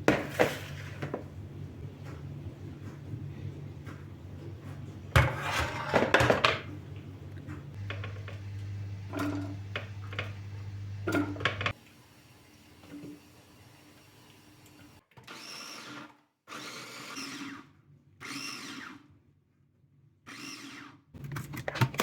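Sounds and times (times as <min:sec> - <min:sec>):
dishes and utensils clattering: 0:00.0 - 0:01.3, 0:05.1 - 0:06.8, 0:11.0 - 0:11.8
low appliance hum: 0:00.0 - 0:15.0.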